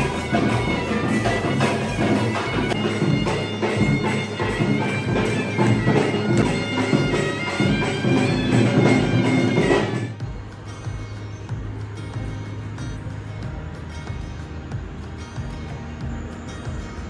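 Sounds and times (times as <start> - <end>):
shrill droning reed pipe: 0.0 - 11.4
steady drumbeats: 0.0 - 17.0.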